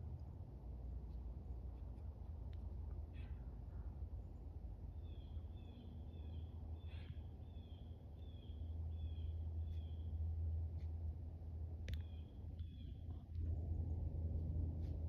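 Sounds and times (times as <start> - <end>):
bird chirping: 5.0 - 10.1, 11.9 - 13.2
low rumble: 8.9 - 15.0.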